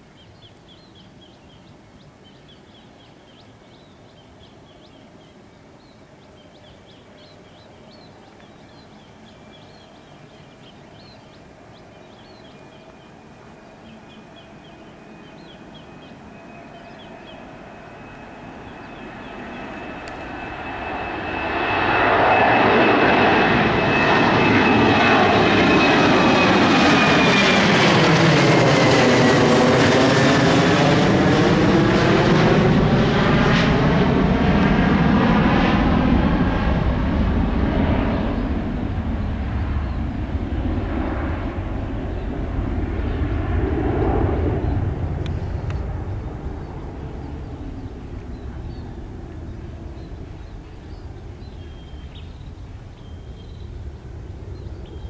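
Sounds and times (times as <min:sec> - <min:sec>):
jet engine whine and rumble: 0:01.4 - 0:55.0.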